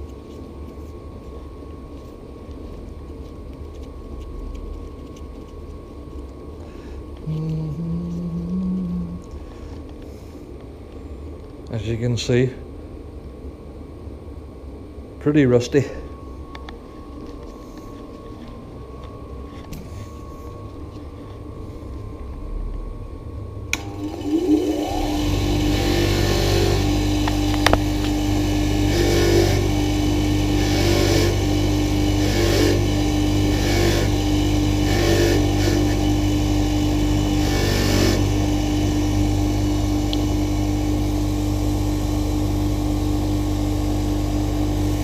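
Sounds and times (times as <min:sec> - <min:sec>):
electric rotary tool spinning: 0:23.8 - 0:40.2.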